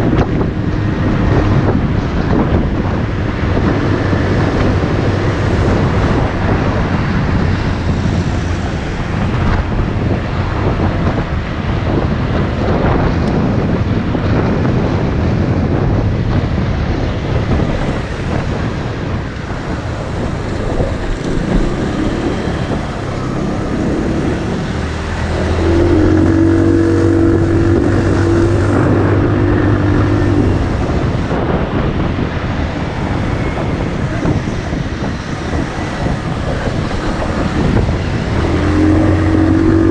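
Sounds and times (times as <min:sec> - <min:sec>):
wind noise on microphone: 0:00.0 - 0:39.9
motorcycle engine running: 0:16.2 - 0:39.9.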